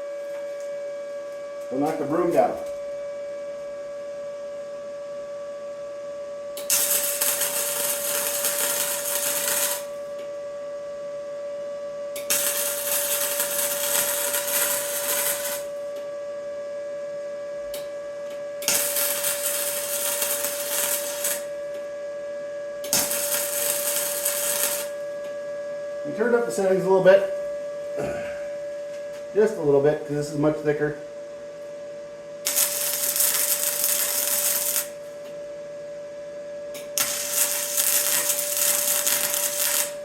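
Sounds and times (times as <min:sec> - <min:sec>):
steady hum: 0:00.0 - 0:40.0
welding arc sizzling: 0:06.6 - 0:10.0, 0:12.2 - 0:15.8, 0:18.6 - 0:21.6, 0:22.8 - 0:25.0, 0:32.4 - 0:35.1, 0:36.8 - 0:40.0.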